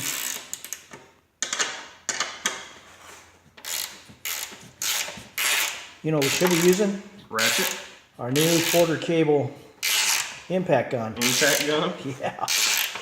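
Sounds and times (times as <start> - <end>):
ratchet wrench clicking: 0.0 - 2.2, 3.6 - 6.8, 9.8 - 10.4, 11.2 - 11.8, 12.5 - 13.0.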